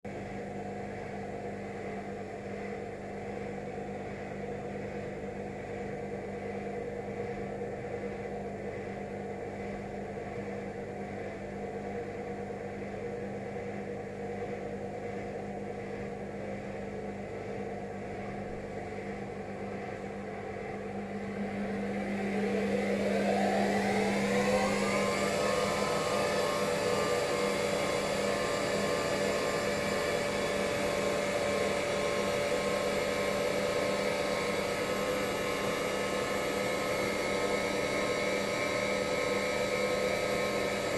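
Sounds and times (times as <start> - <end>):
washing machine spin whine: 0.1 - 40.9
washing machine drum motor: 13.4 - 40.9.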